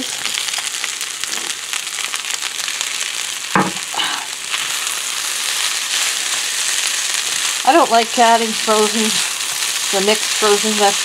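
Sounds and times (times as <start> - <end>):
rice sizzling in a frying pan: 0.0 - 11.0
utensil stirring in a pan: 4.4 - 11.0.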